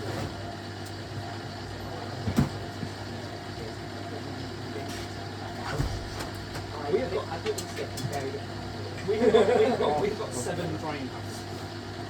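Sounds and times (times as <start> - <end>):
washing machine motor hum: 0.0 - 12.0.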